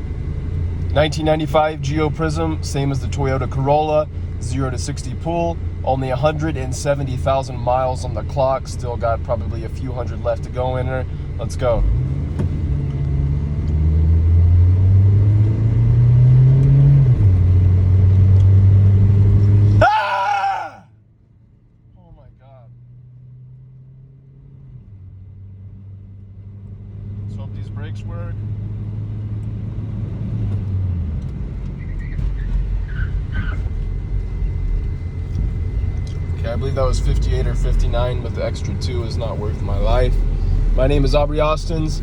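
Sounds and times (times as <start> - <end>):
car engine at full throttle: 0.0 - 20.8, 21.8 - 42.0
road noise: 0.0 - 42.0.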